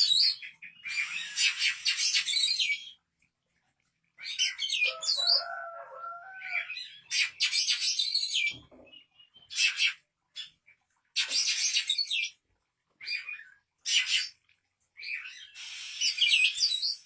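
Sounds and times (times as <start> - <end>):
nestlings shrill rapid chirping: 0.8 - 2.7, 15.5 - 17.0.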